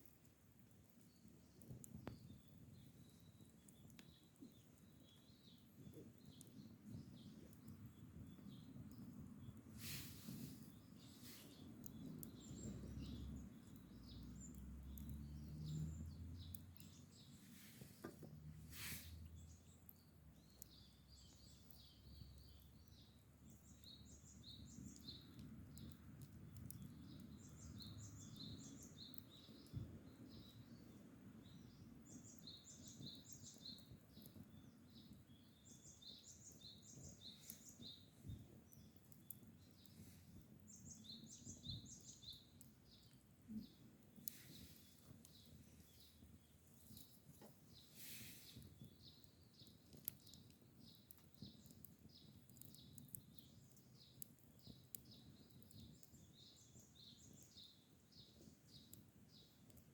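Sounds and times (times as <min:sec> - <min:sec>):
small birds chirping: 0:00.0 - 0:59.9
rustle: 0:08.5 - 0:22.7, 0:23.5 - 0:59.9.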